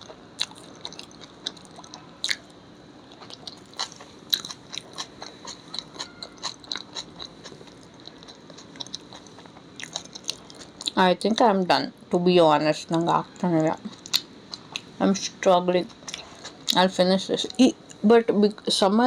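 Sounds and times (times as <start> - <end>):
person chewing food: 0.0 - 11.0, 13.8 - 14.9, 15.9 - 16.8.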